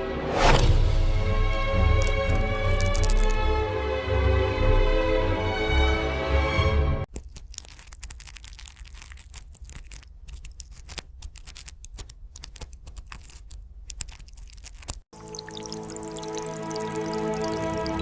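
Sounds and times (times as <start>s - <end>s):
soft music with sustained tones: 0.8s - 7.0s, 15.2s - 18.0s
crackling scratching clicks: 7.1s - 15.1s.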